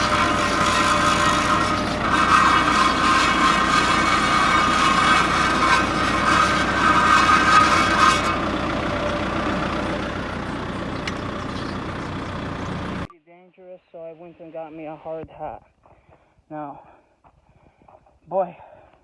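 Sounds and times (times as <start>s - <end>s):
engine idling: 0.0s - 13.1s
harsh grinding noise: 0.0s - 13.1s.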